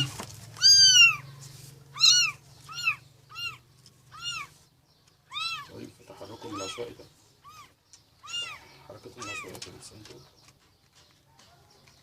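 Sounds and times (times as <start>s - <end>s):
kittens mewing: 0.6s - 1.3s, 1.9s - 9.6s.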